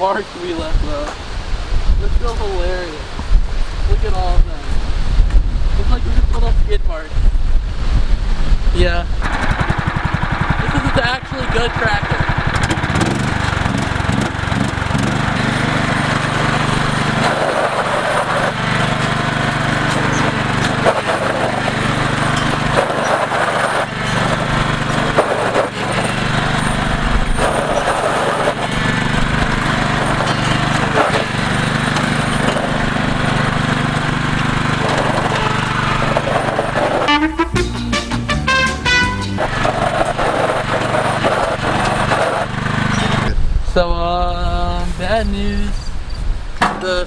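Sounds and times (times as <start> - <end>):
lawn tractor engine running: 9.1 - 37.5, 38.9 - 43.4
knocks and rattles: 9.2 - 37.2, 39.4 - 43.3, 46.6 - 47.0.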